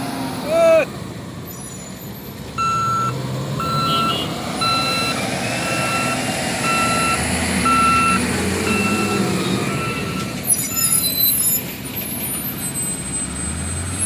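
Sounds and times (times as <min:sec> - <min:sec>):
heavy vehicle engine rumble: 0:00.0 - 0:14.0
reversing alarm beeping: 0:02.6 - 0:11.6.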